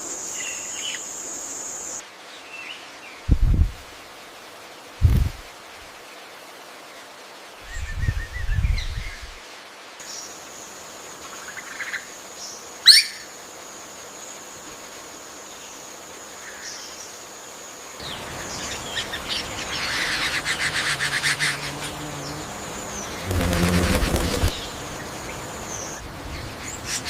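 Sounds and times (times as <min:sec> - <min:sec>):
bird rattling chatter: 0:23.2 - 0:24.7.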